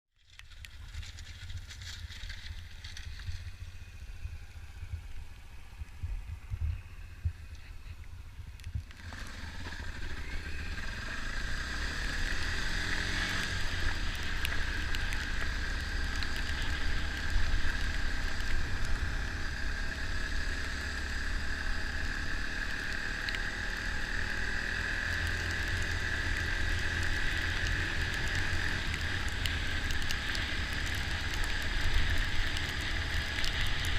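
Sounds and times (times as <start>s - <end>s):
dirt bike engine running: 0.8s - 33.9s.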